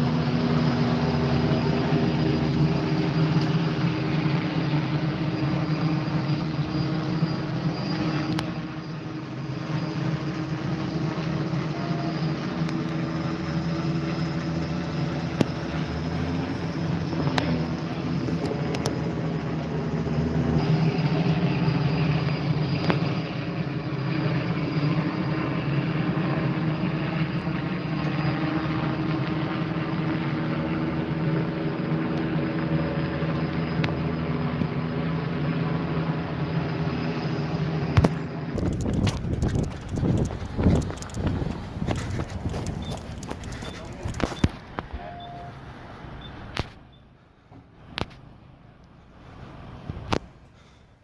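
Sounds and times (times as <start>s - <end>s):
engine drone: 0.0s - 46.7s
faint clicks: 38.6s - 44.9s.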